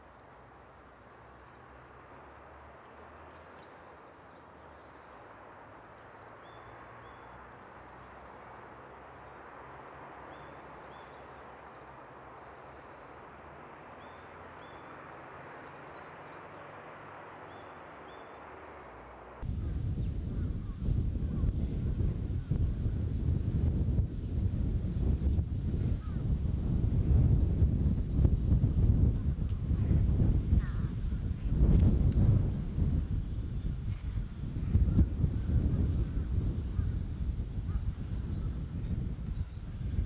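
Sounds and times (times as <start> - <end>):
small birds chirping: 0.0 - 22.7
outdoor background hiss: 0.0 - 40.0.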